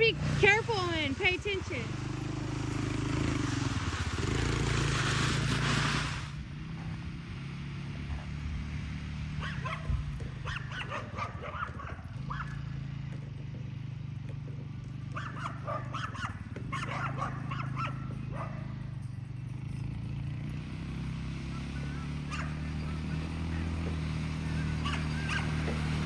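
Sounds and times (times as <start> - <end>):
dog barking: 9.4 - 12.6, 15.2 - 18.7, 22.3 - 22.6, 24.8 - 25.6.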